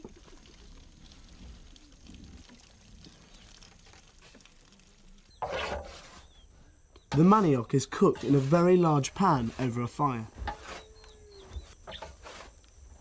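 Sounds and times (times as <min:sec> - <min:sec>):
gush of liquid: 0:00.0 - 0:05.2.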